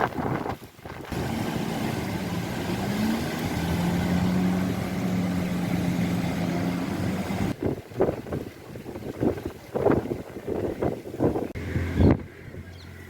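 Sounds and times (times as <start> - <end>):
motor engine humming: 1.0 - 7.6, 10.6 - 13.0.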